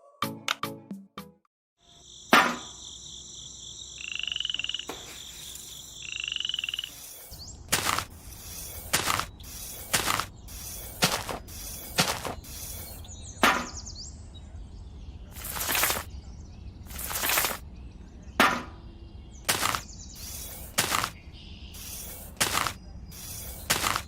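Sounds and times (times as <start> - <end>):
hissing strokes: 6.6 - 13.1, 15.4 - 16.1, 16.9 - 17.6, 19.5 - 21.2, 21.8 - 24.0.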